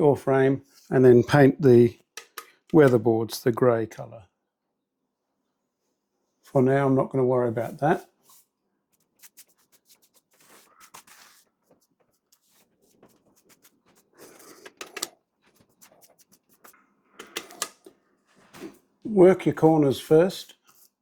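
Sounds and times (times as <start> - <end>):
paintbrush tapping and rubbing: 7.7 - 18.0.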